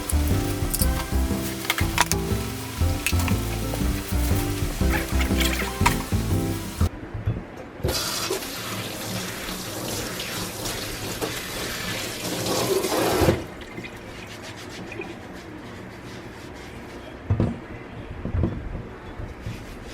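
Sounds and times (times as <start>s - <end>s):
water running in a stream: 0.0s - 6.9s.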